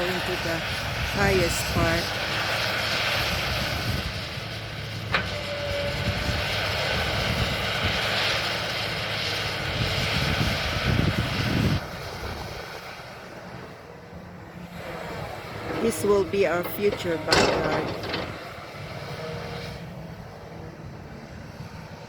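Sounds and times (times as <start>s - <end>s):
excavator diesel engine running: 0.0s - 22.0s
sharp metal clank: 15.7s - 18.6s.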